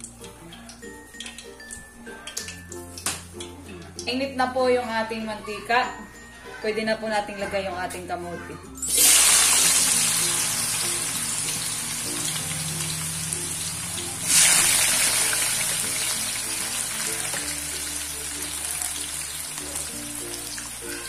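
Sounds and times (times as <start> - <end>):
potato sticks sizzling in oil: 8.8 - 21.0.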